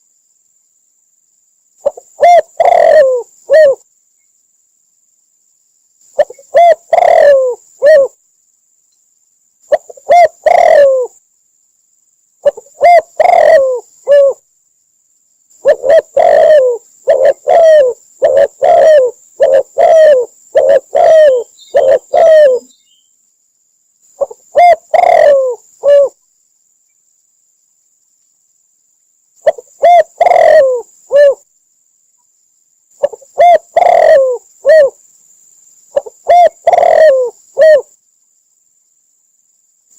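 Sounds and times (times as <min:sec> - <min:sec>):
dove cooing: 0:01.8 - 0:03.8, 0:06.2 - 0:08.2, 0:09.7 - 0:11.2, 0:12.4 - 0:14.4, 0:15.6 - 0:22.8, 0:24.2 - 0:26.2, 0:29.4 - 0:31.4, 0:33.0 - 0:35.0, 0:35.9 - 0:37.9.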